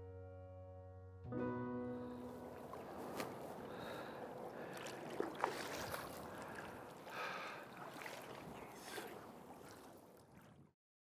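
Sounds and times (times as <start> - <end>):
lake water lapping at shore: 2.1 - 10.8
small water splashes: 2.4 - 10.8.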